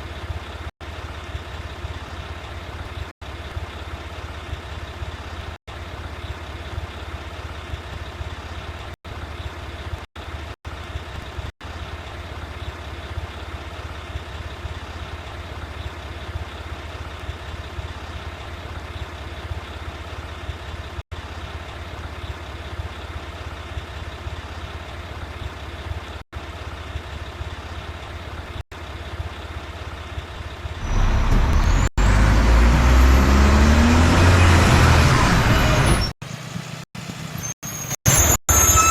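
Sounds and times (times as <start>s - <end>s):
diesel engine idling: 0.0s - 35.7s
engine revving: 30.8s - 36.2s.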